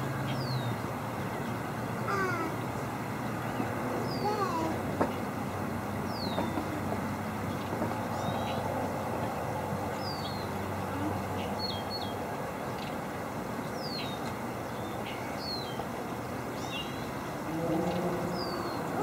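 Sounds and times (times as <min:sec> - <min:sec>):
bird chirping: 0:16.6 - 0:19.0.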